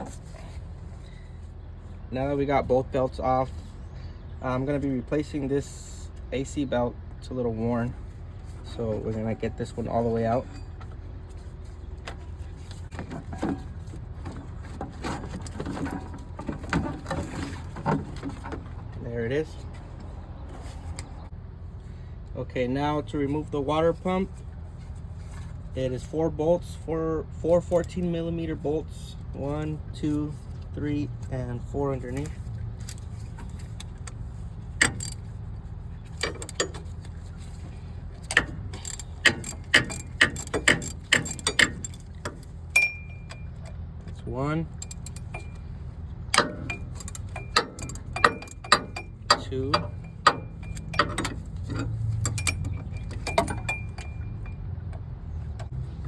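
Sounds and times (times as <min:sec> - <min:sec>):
steady low hum: 0:00.0 - 0:56.0
belt knocking and scraping: 0:08.4 - 0:19.0, 0:29.4 - 0:56.0
hand ratchet clicking: 0:34.8 - 0:35.2, 0:38.2 - 0:43.4, 0:44.8 - 0:45.6, 0:46.3 - 0:54.6.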